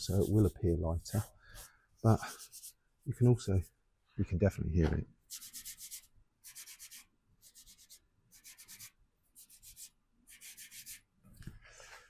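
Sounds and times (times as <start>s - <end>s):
hand sanding metal panel: 0.0s - 1.3s.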